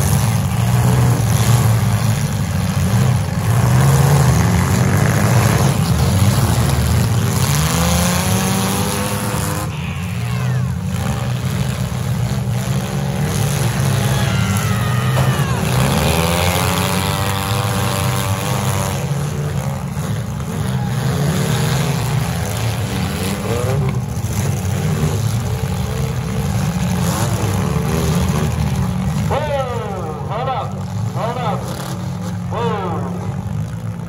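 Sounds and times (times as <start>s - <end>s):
car engines running and revving: 0.0s - 34.0s.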